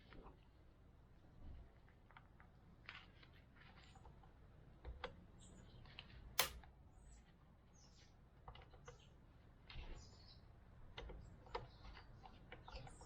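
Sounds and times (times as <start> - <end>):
sharp click: 6.4 - 6.7.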